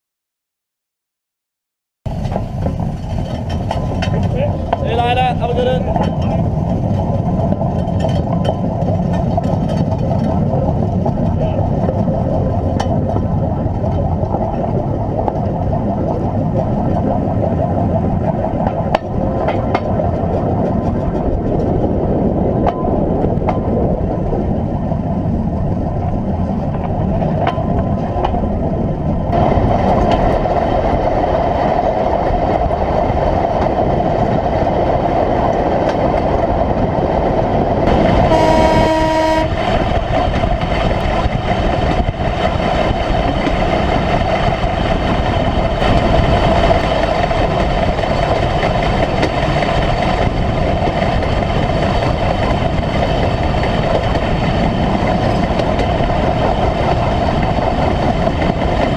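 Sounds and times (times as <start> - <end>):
sharp clicks of wheels: 2.1 - 17.2, 17.8 - 24.5, 25.4 - 38.2, 39.7 - 58.9
engine and wheel rumble: 2.1 - 58.9
vehicle horn: 38.2 - 39.7.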